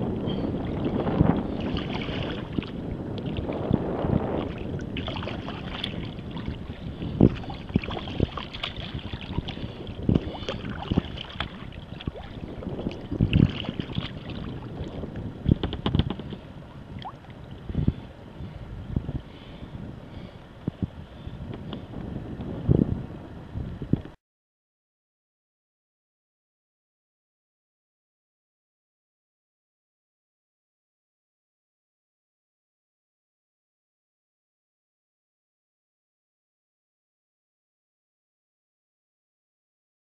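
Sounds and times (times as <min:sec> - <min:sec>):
water splashing and sloshing: 0:00.0 - 0:18.1
wind buffeting microphone: 0:00.0 - 0:24.2
paddle knocks and splashes: 0:00.6 - 0:16.4.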